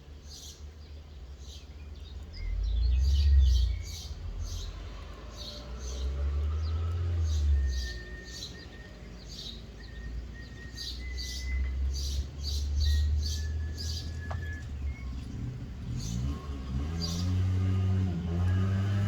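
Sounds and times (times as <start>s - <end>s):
small birds chirping: 0.0s - 19.0s
steady low rumble: 2.0s - 4.8s.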